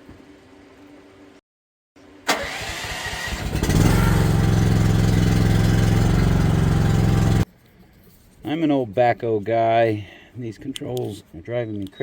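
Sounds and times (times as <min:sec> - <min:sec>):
engine running steadily: 0:02.2 - 0:07.4
starter motor cranking: 0:02.3 - 0:07.4.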